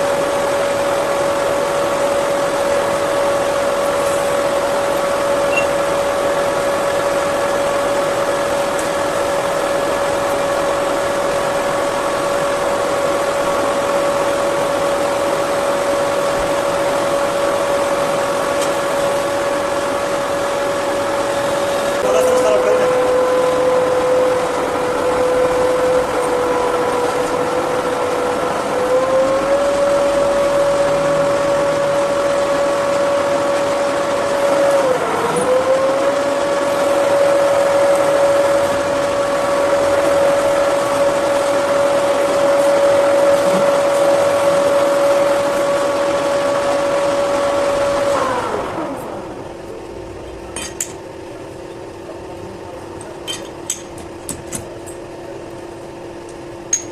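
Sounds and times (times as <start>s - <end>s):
metal lathe motor running: 0.0s - 56.9s
machine winding down: 1.4s - 49.6s
rushing noise: 29.5s - 34.4s.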